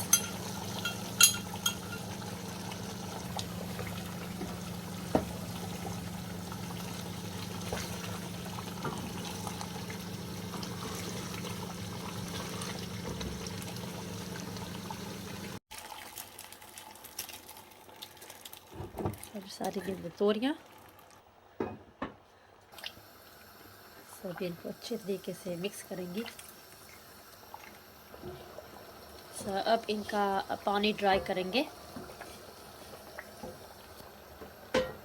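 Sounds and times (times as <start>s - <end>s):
pot cooking hiss: 0.0s - 15.6s, 22.8s - 35.0s.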